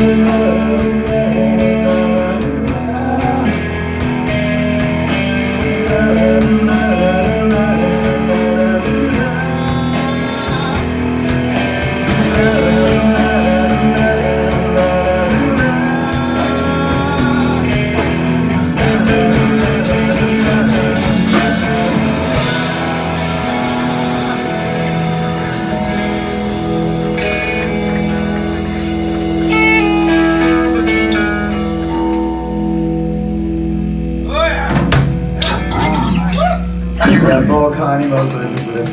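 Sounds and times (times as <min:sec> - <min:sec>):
person singing: 0:00.0 - 0:03.8, 0:05.3 - 0:28.9, 0:35.4 - 0:38.0
bass guitar: 0:00.0 - 0:38.9
drums: 0:00.0 - 0:38.9
electric guitars: 0:00.0 - 0:38.9.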